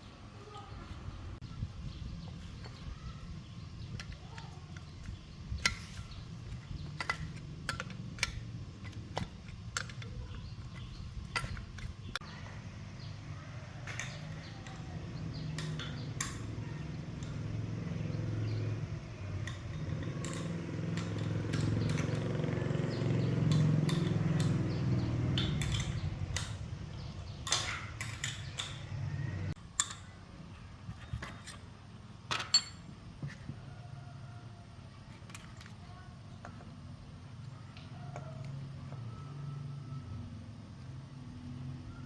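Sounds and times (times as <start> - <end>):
metallic clinks of tools: 32.3 - 32.8.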